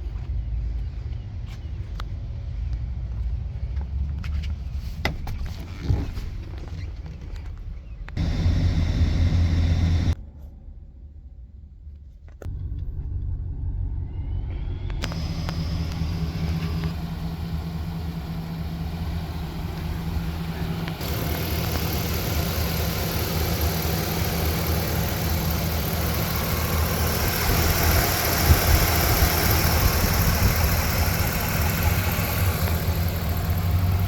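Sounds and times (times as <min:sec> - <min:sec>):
truck engine running: 0:08.2 - 0:10.2, 0:14.8 - 0:34.0.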